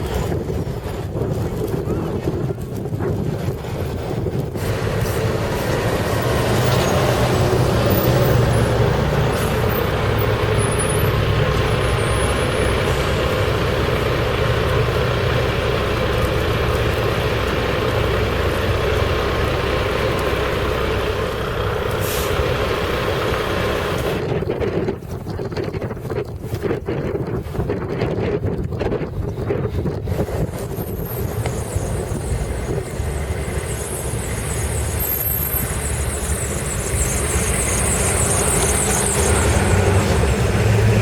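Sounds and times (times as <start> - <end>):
large vehicle engine running: 0.0 - 41.0.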